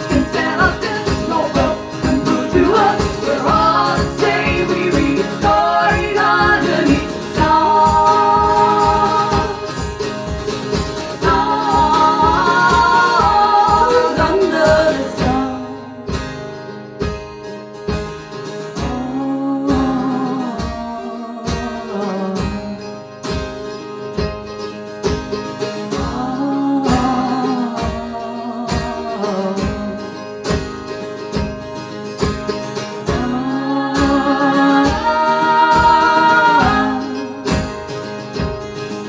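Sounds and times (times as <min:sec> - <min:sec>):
person singing: 0:00.0 - 0:10.3, 0:10.9 - 0:16.1, 0:18.8 - 0:22.7, 0:25.9 - 0:30.2, 0:33.0 - 0:37.8
strummed acoustic guitars: 0:00.0 - 0:39.0.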